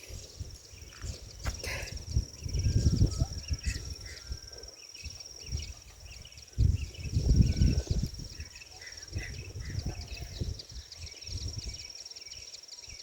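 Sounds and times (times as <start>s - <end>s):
low microphone rumbles: 5.4s - 8.5s.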